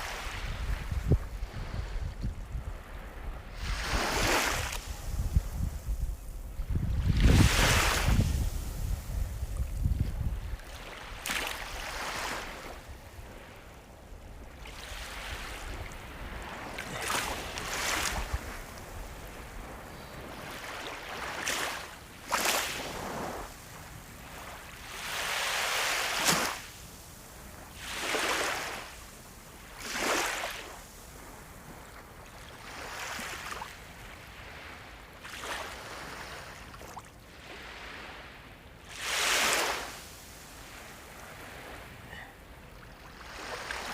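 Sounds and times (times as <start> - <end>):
sea waves breaking: 0.0 - 26.8, 27.7 - 31.3, 32.5 - 43.9.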